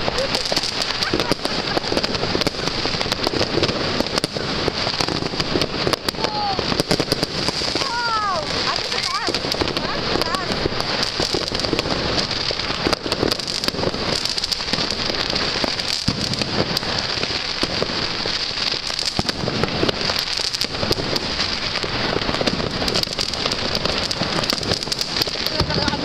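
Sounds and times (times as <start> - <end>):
firecracker bangs: 0.0 - 26.0
fireworks crackling: 0.0 - 26.0.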